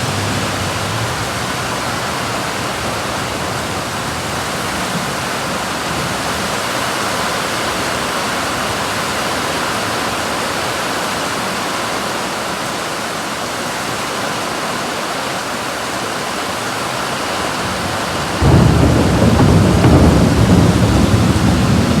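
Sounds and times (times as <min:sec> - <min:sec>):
thunder rumbling: 0:00.0 - 0:10.4, 0:17.3 - 0:22.0
heavy rain falling: 0:00.0 - 0:22.0.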